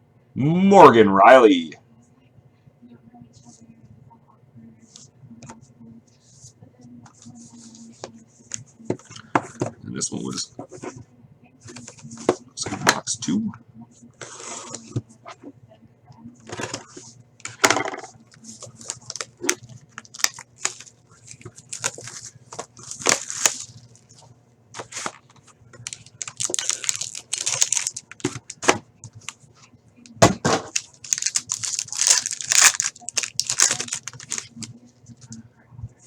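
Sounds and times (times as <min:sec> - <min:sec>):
plastic wrap and paper ripping: 0:16.5 - 0:24.2, 0:24.8 - 0:29.4, 0:30.6 - 0:34.7.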